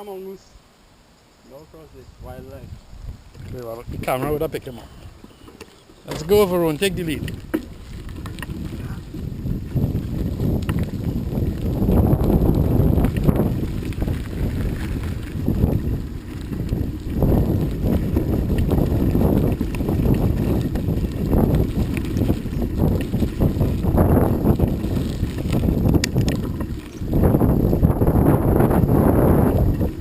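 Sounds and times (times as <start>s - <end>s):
wind buffeting microphone: 1.8s - 5.4s, 6.0s - 30.0s.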